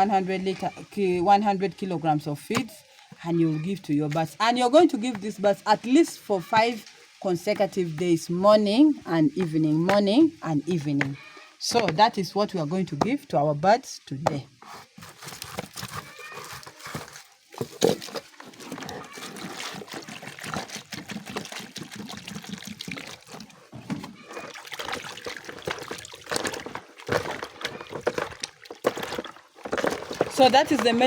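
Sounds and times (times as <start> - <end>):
water pouring and sloshing: 14.6 - 31.0.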